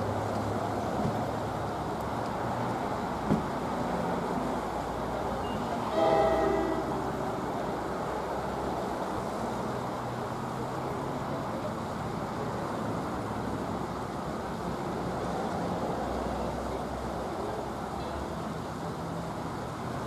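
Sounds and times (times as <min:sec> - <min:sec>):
train approaching rumble: 0:02.8 - 0:11.8.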